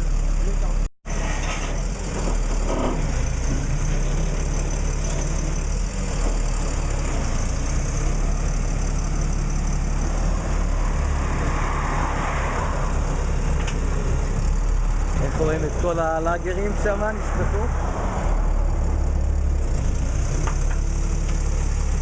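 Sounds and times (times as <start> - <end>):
engine idling: 0.0 - 0.9, 18.4 - 22.0.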